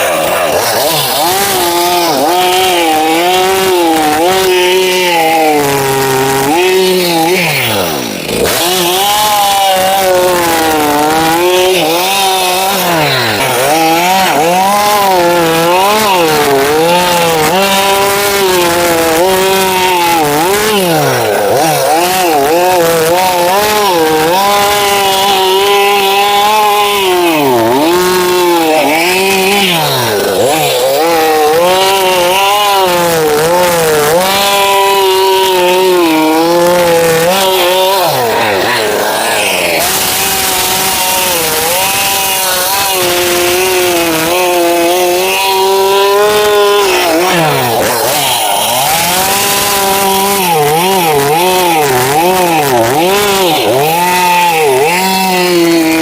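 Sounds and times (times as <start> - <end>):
chainsaw cutting logs: 0.0 - 56.0.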